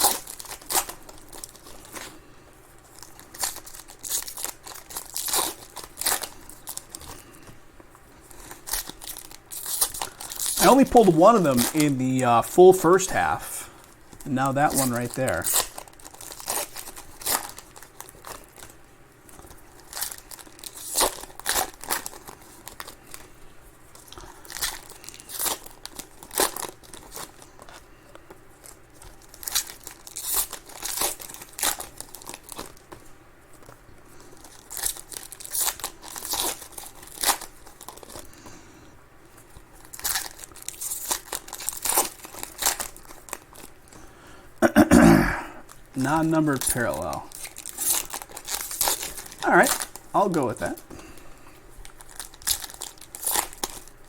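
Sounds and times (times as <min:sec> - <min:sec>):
card wrappers tearing and crinkling: 0:00.0 - 0:07.6, 0:08.2 - 0:38.5, 0:39.3 - 0:44.0, 0:45.6 - 0:54.0
cards being handled: 0:02.9 - 0:23.2, 0:45.7 - 0:50.9.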